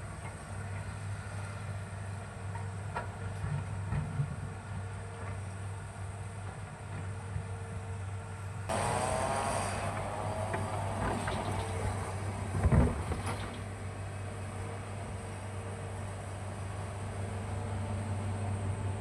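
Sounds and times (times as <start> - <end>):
excavator diesel engine whining: 8.7 - 19.0.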